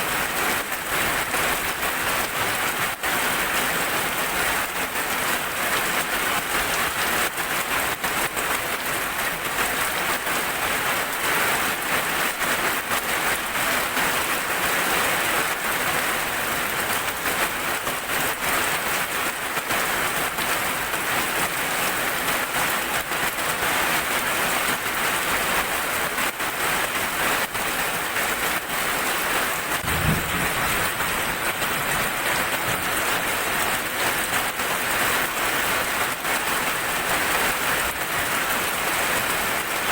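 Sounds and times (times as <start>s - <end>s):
heavy rain falling: 0.0s - 39.9s
short low thud: 29.8s - 32.1s.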